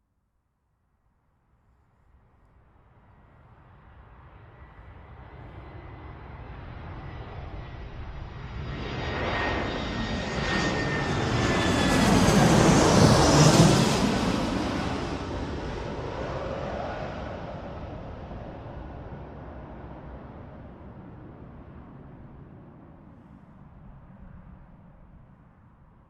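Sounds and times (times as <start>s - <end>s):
jets flying past: 5.7s - 23.2s.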